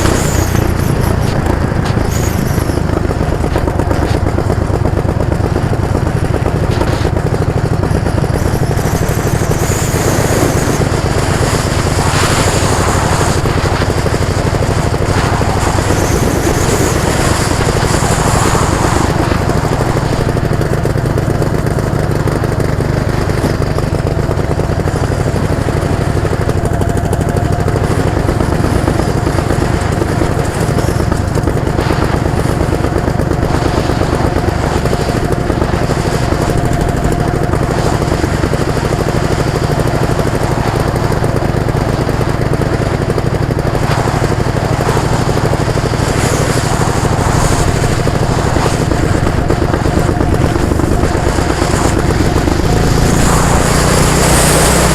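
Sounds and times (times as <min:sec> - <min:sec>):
loud vehicle engine running: 0:00.0 - 0:54.9.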